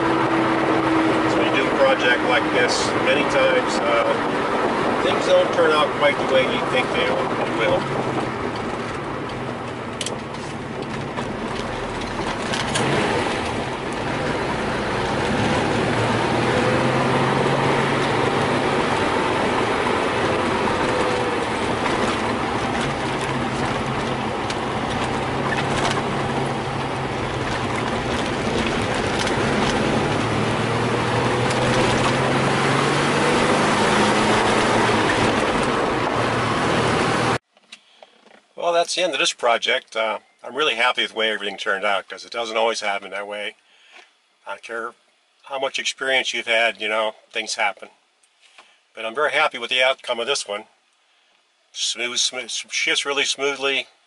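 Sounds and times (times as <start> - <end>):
road and wind noise: 0.0 - 38.6
car engine under load: 0.0 - 39.2.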